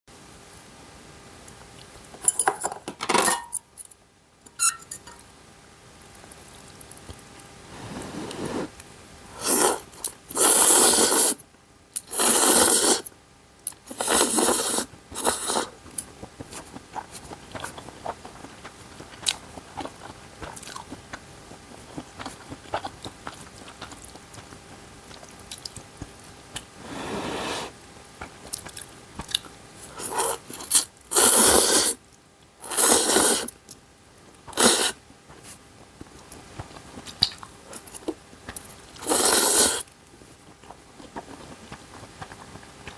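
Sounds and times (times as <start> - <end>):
loud slurping bursts: 10.4 - 11.4, 12.1 - 13.1, 13.9 - 15.7, 30.1 - 32.0, 32.7 - 33.5, 34.6 - 35.0, 39.0 - 39.8
chewing: 13.7 - 26.8, 28.1 - 31.9, 32.8 - 42.9.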